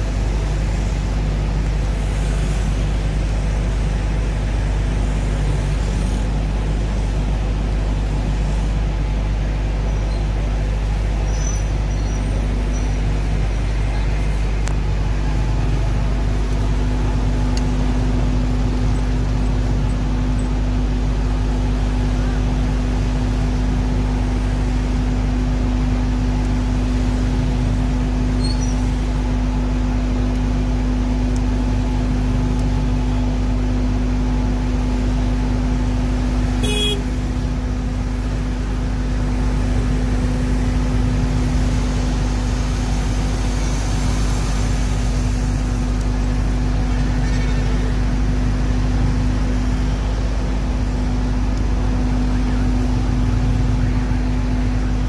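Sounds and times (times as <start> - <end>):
fire engine engine running: 0.0 - 55.0.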